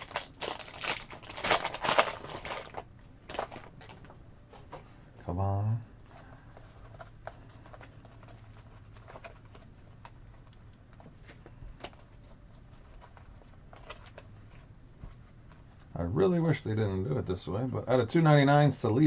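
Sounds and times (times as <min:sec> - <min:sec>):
low steady hum: 0:00.0 - 0:19.0
cards shuffled by hand: 0:06.4 - 0:15.9.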